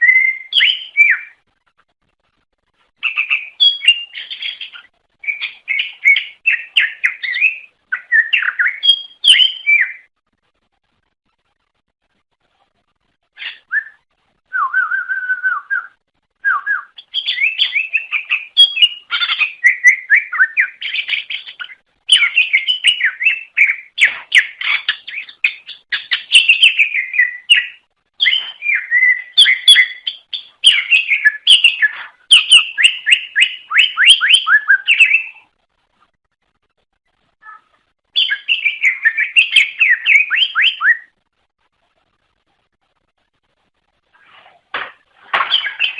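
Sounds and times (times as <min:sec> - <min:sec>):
bird singing: 0:00.0 - 0:01.4, 0:03.0 - 0:10.1, 0:13.4 - 0:14.0, 0:14.6 - 0:35.4, 0:37.4 - 0:41.2, 0:45.4 - 0:45.9.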